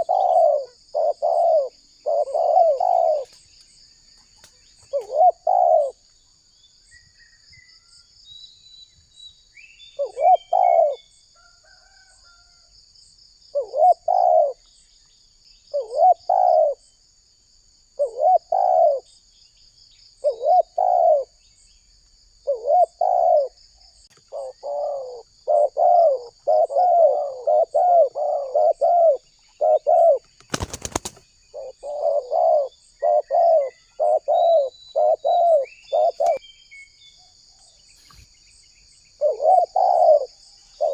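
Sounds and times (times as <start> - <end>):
dove cooing: 0.0 - 3.4, 4.8 - 6.0, 10.0 - 11.1, 13.5 - 14.6, 15.7 - 16.8, 18.0 - 19.1, 20.2 - 21.4, 22.4 - 23.6, 24.2 - 36.4, 39.2 - 40.9
insects chirring: 0.0 - 40.9.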